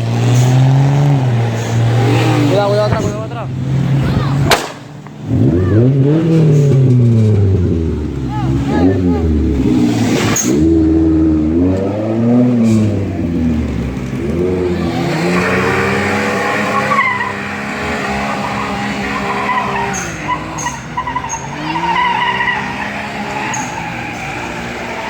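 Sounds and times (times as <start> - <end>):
high squeal: 18.1 - 25.0.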